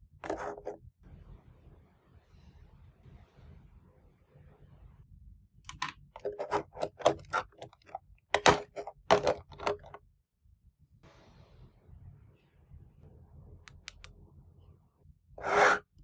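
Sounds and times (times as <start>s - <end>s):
plastic toys clicking and tapping: 0.2s - 0.8s, 5.7s - 10.0s.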